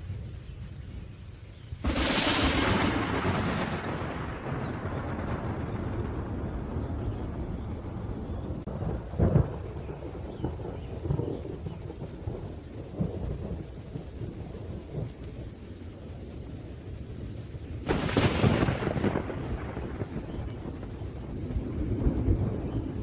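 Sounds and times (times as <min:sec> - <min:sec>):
steady rain: 0:00.0 - 0:23.0
sharp thunderclap: 0:01.8 - 0:14.1, 0:17.8 - 0:23.0
rolling thunder: 0:01.8 - 0:23.0.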